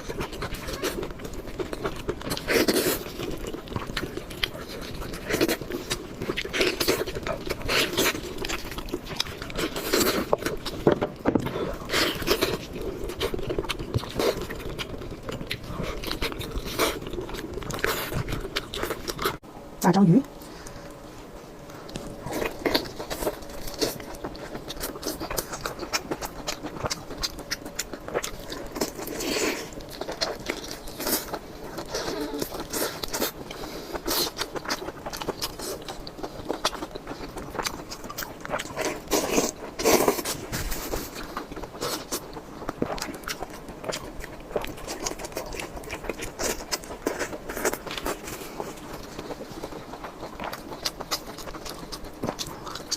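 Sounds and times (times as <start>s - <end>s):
wet chewing and smacking: 0.0s - 19.4s, 21.6s - 52.9s.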